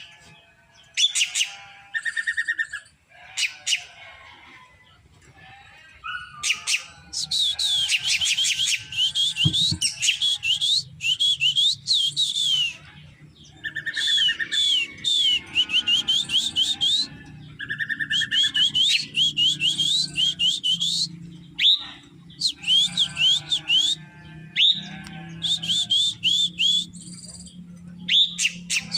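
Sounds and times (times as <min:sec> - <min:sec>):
bird buzzy trills: 0:00.0 - 0:04.6, 0:05.8 - 0:28.9
bird whistling downward notes: 0:06.4 - 0:12.8, 0:13.7 - 0:21.8, 0:22.4 - 0:24.0, 0:25.4 - 0:27.5, 0:28.1 - 0:28.9.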